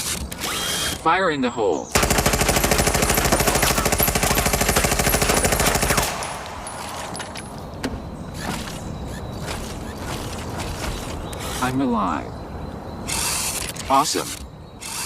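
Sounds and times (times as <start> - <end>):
automatic gunfire burst: 2.0 - 6.3.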